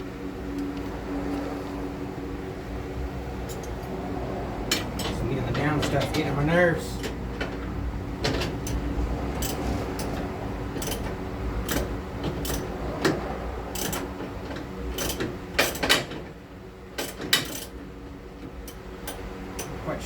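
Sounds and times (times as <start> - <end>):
steady low hum: 0.0 - 20.0
hand tools clicking and clanking: 3.4 - 4.0, 4.6 - 16.4, 17.0 - 20.0.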